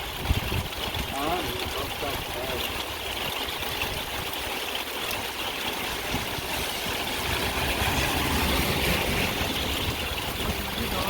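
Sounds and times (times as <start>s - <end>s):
vehicle engine rumbling: 5.2s - 11.0s
tyres hissing on wet road: 5.7s - 11.0s.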